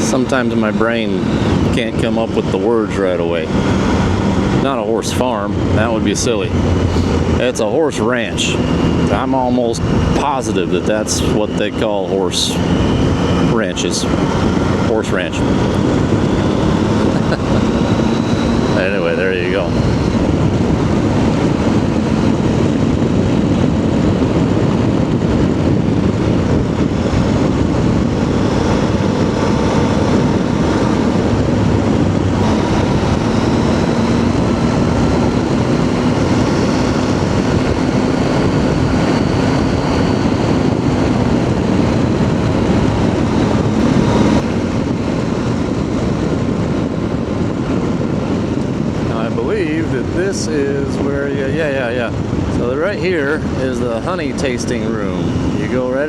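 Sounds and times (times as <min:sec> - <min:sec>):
motorcycle engine running: 0:00.0 - 0:56.0
wind rush: 0:00.0 - 0:56.0.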